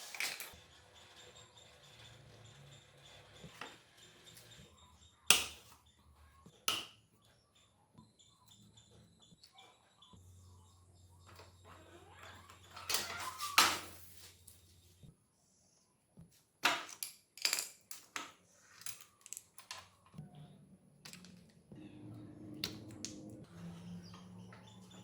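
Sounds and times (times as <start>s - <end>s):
hand tools and metal parts clinking: 0.0s - 0.6s, 16.6s - 20.1s.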